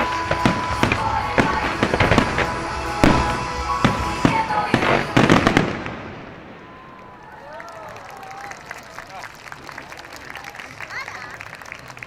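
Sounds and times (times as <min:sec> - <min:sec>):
pop music over loudspeakers: 0:00.0 - 0:05.6
fireworks bursting: 0:00.0 - 0:07.1.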